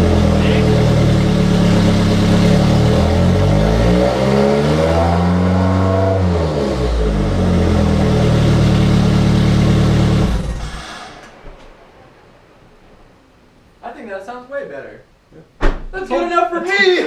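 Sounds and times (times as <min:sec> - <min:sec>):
car engine revving: 0:00.0 - 0:11.5.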